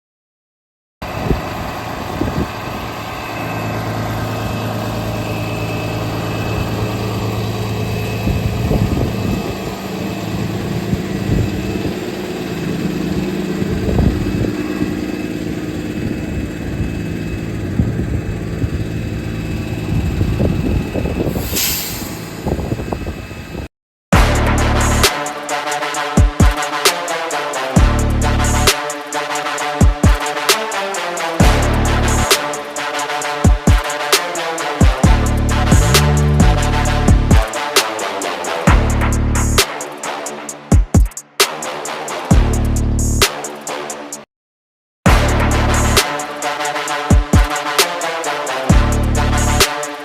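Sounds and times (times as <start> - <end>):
vehicle engine humming: 1.0 - 21.4, 27.8 - 28.7, 31.4 - 32.4, 35.0 - 37.4, 38.7 - 39.6
burst of hiss: 21.3 - 22.4
low rumbles: 35.0 - 37.3.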